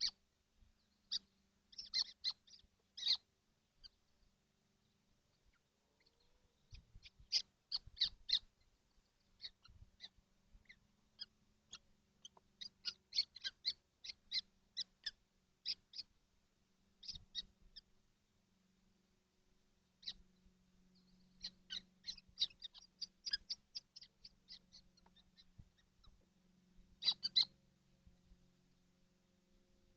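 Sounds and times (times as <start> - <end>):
chicks giving sharp high calls: 0.0 - 4.2, 5.3 - 16.3, 16.9 - 18.0, 21.0 - 26.2, 26.9 - 27.6.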